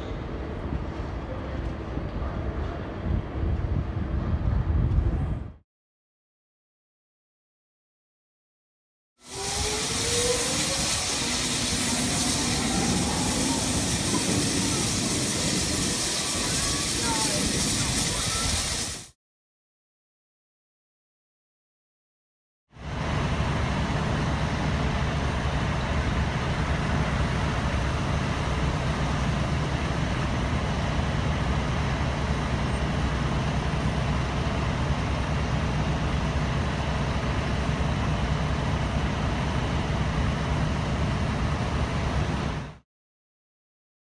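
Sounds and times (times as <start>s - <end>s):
electric train rumbling past: 9.2s - 19.1s, 22.8s - 42.8s.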